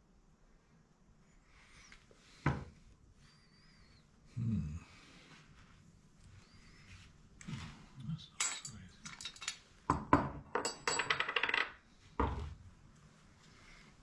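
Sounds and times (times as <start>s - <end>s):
metal tools clinking: 8.4s - 9.6s, 10.6s - 11.7s.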